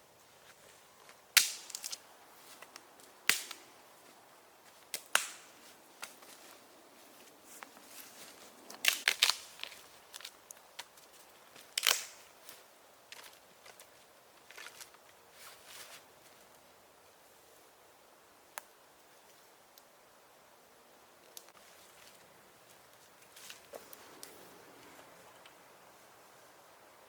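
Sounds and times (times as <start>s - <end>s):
sharp wooden cracks and snaps: 1.4s - 2.0s, 2.7s - 3.6s, 4.9s - 6.2s, 8.7s - 12.3s.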